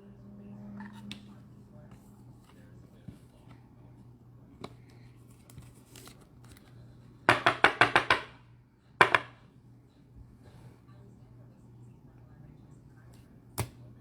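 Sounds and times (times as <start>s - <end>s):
faint clicks of handling cards: 4.6s - 6.8s.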